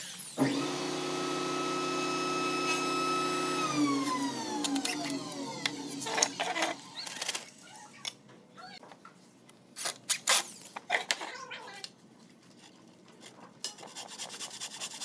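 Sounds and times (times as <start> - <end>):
power tool motor winding down: 0.4 - 7.2.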